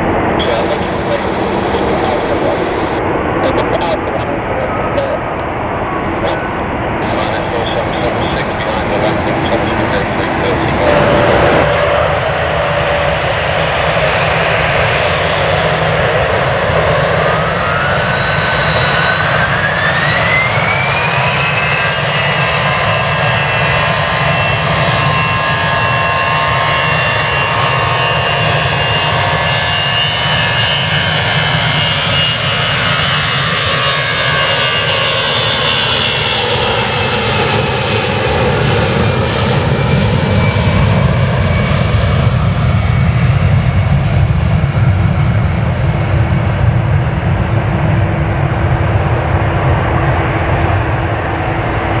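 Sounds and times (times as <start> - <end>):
jet engines spooling up: 0.0 - 21.2.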